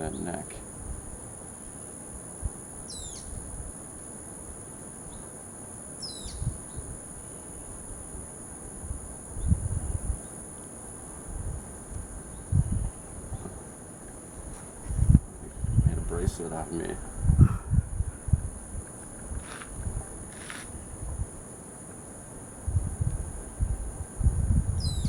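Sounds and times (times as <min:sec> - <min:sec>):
bird calls: 0:02.9 - 0:03.3, 0:06.0 - 0:06.8, 0:24.8 - 0:25.0
microphone handling rumbles: 0:11.4 - 0:13.8, 0:14.4 - 0:21.3, 0:22.7 - 0:25.0.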